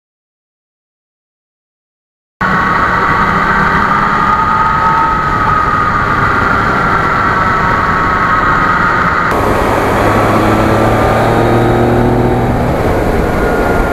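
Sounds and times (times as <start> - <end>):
motorcycle engine running: 9.3 - 13.9.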